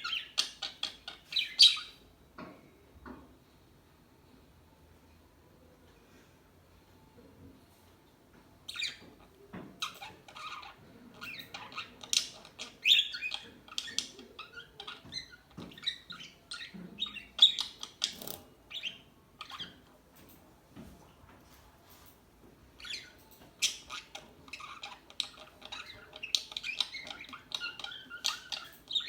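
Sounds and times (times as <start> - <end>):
budgerigars chirping and squawking: 0.0 - 2.0, 8.7 - 9.2, 9.8 - 19.8, 22.8 - 29.0.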